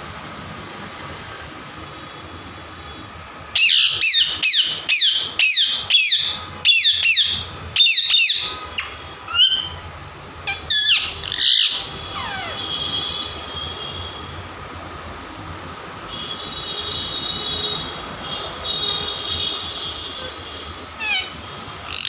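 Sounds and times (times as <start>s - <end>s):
parrot screeching: 3.5s - 12.7s, 21.0s - 22.0s.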